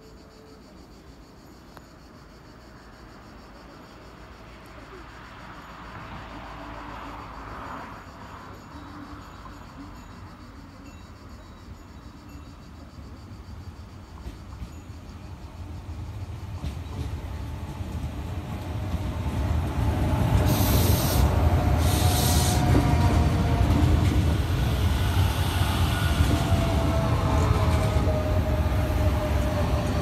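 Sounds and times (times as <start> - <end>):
train rumbling: 3.8 - 30.0
short hisses: 20.4 - 22.6.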